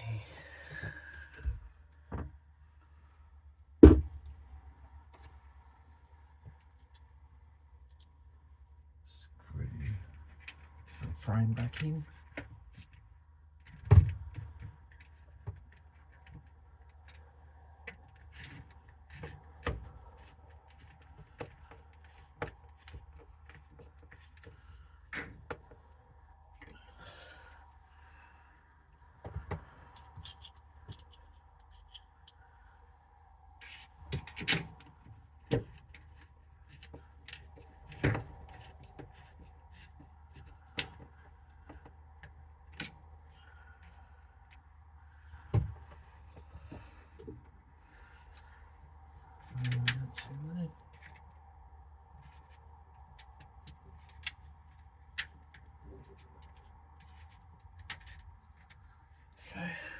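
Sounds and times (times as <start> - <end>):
faint steady hum: 0.0 - 59.9
clicks and taps of screwing: 29.2 - 32.4, 52.2 - 58.9.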